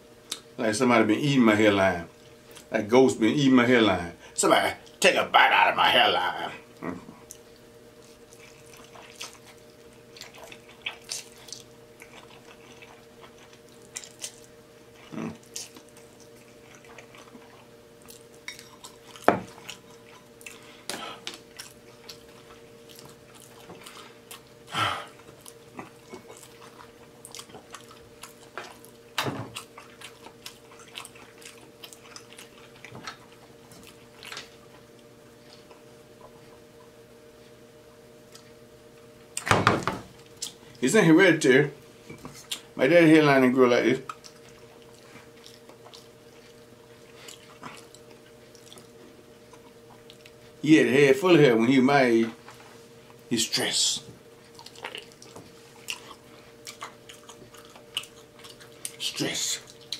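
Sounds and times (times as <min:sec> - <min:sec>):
faint steady hum: 0:00.0 - 0:59.9
chewing and lip-smacking: 0:06.7 - 0:36.9, 0:38.2 - 0:38.6, 0:40.2 - 0:40.8, 0:42.1 - 0:42.7, 0:44.0 - 0:50.6, 0:54.4 - 0:59.9.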